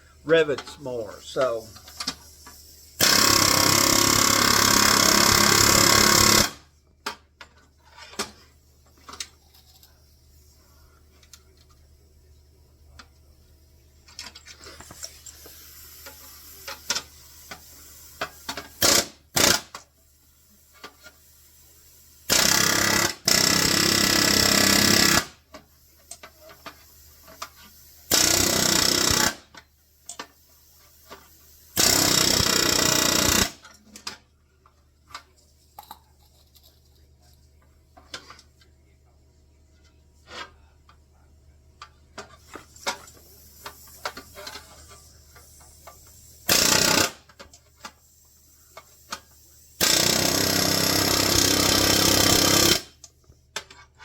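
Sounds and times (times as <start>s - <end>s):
pneumatic air hammer: 1.4s - 7.2s, 14.2s - 19.9s, 20.6s - 34.2s, 42.2s - 53.0s.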